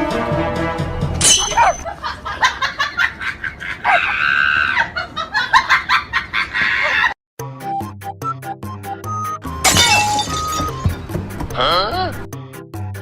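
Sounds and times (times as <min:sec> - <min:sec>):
people laughing: 0:01.8 - 0:07.2.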